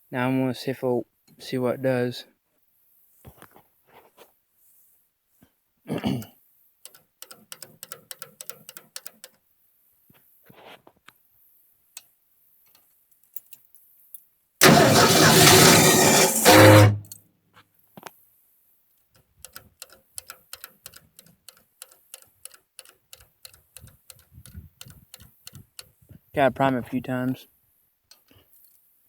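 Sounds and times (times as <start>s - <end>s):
engine cranking on starter: 14.6s - 17.1s
faint regular ticking: 19.4s - 25.9s.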